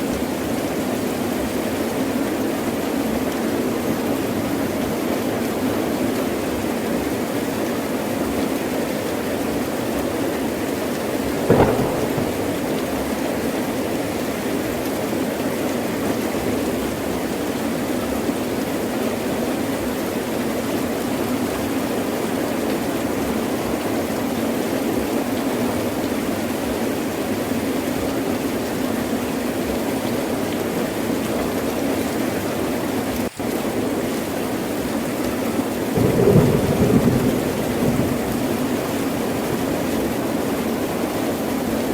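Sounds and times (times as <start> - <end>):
heavy rain pouring: 0.0 - 41.9
thunder crack: 11.4 - 14.0, 36.0 - 40.0.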